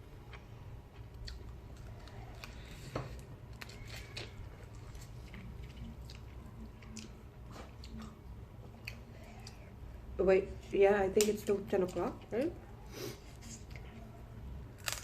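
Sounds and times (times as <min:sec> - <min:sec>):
chewing and crunching: 0:00.2 - 0:09.8, 0:13.3 - 0:15.0.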